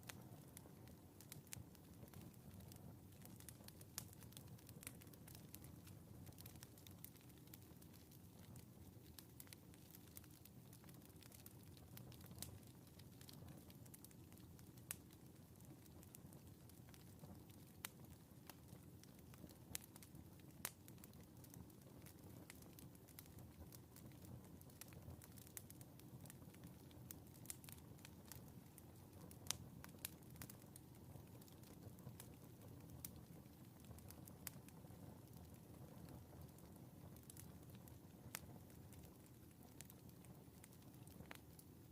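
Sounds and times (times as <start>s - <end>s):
fire crackling and popping: 0.0s - 41.9s
low steady fire rumble: 0.0s - 41.9s.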